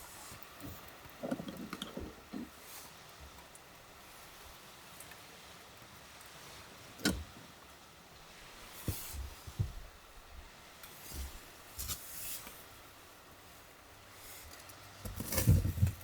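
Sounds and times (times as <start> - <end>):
rustling: 14.2 - 16.0.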